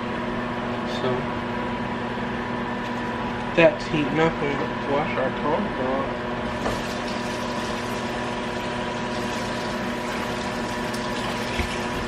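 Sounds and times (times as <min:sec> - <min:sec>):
steady hum: 0:00.0 - 0:12.0
tap water running: 0:06.4 - 0:12.0.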